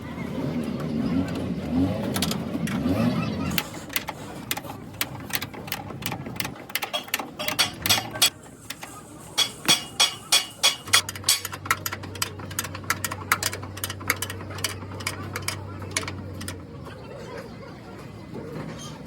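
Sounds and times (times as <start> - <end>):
hammer blows on metal: 9.4 - 11.5.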